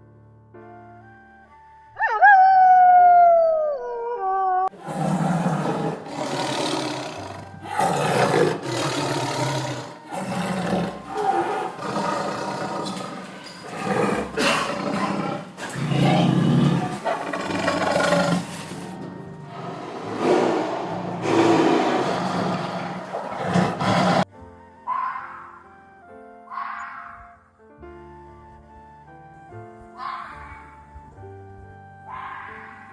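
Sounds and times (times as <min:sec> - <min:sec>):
soft music tones: 0:00.0 - 0:22.5, 0:24.2 - 0:32.9.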